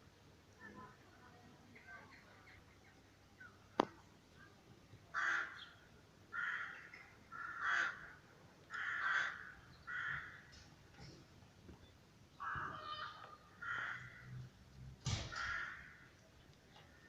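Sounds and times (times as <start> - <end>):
crow cawing: 5.2 - 5.6, 6.3 - 10.5, 12.4 - 14.4, 15.3 - 16.1.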